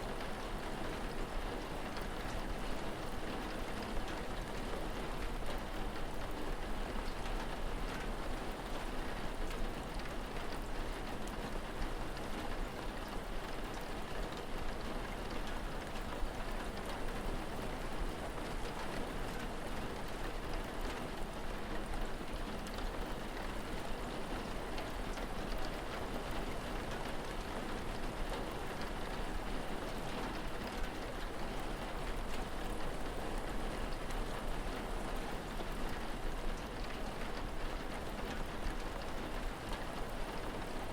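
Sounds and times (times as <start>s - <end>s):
rain pattering: 0.0s - 40.9s.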